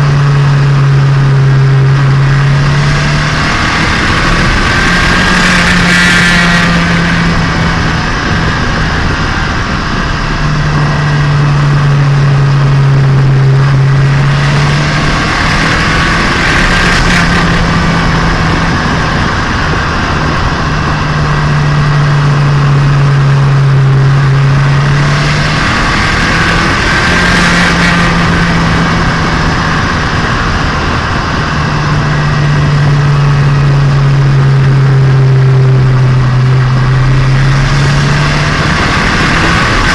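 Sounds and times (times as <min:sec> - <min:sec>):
car engine and exhaust drone: 0:00.0 - 0:39.9.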